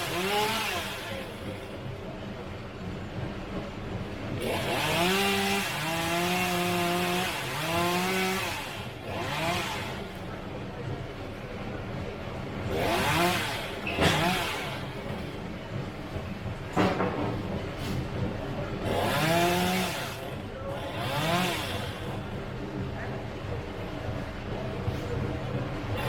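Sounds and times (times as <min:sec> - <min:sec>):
chainsaw cutting through wood: 0:00.0 - 0:01.9, 0:04.4 - 0:10.4, 0:12.6 - 0:15.4, 0:18.8 - 0:22.4
chainsaw revving: 0:00.0 - 0:01.9, 0:04.4 - 0:10.3, 0:12.7 - 0:15.4, 0:18.8 - 0:22.4.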